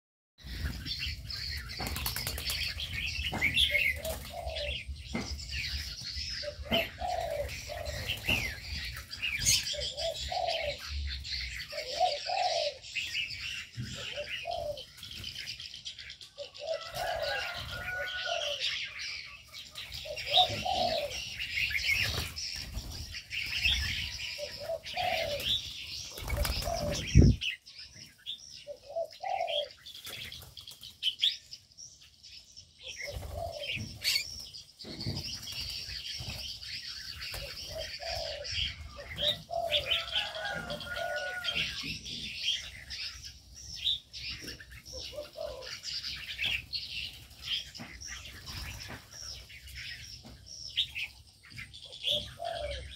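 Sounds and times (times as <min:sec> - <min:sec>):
small birds chirping: 0:00.4 - 0:52.9
doves cooing: 0:00.5 - 0:15.2, 0:16.3 - 0:27.6, 0:28.6 - 0:30.3, 0:32.8 - 0:43.2, 0:44.2 - 0:49.0, 0:51.7 - 0:52.9
wings flapping: 0:01.8 - 0:02.8, 0:26.1 - 0:27.4.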